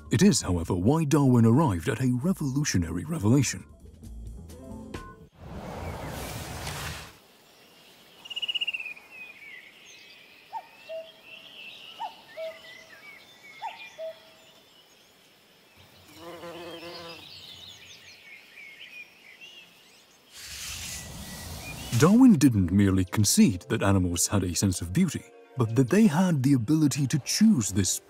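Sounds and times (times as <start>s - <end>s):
birds chirping: 7.4s - 28.0s
bird trill: 8.2s - 15.0s.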